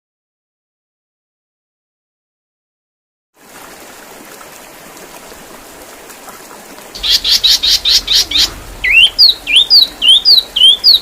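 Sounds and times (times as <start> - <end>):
faint hiss: 4.0 - 11.0
songbird chirping: 7.0 - 11.0.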